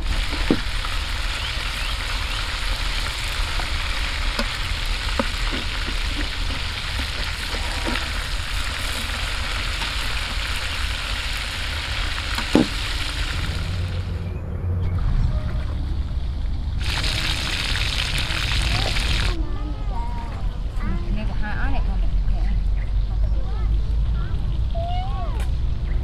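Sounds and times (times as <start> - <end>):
wings frying in hot oil: 0.0 - 14.3, 16.8 - 19.4.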